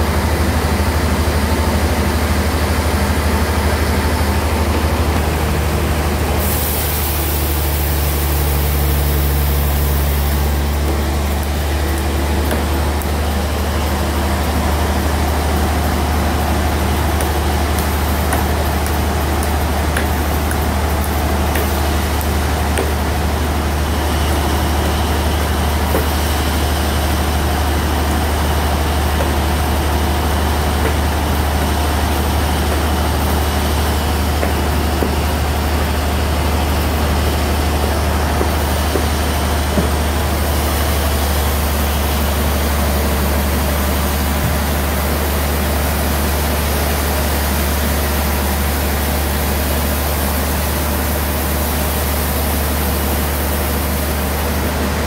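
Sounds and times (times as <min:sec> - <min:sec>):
bandsaw humming: 0:04.4 - 0:45.2
saw hissing through log: 0:06.1 - 0:54.9.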